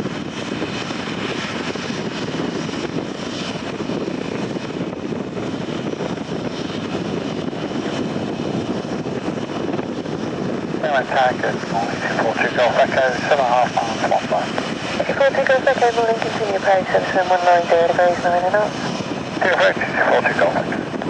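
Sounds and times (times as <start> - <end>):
jet airliner engine rushing: 0.0 - 21.0.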